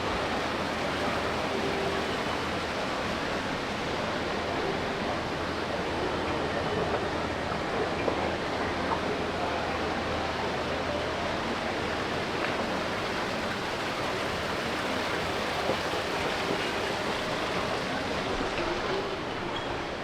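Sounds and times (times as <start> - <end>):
distant voices murmuring: 0.0 - 20.0
indoor mall ambience hiss: 0.0 - 20.0.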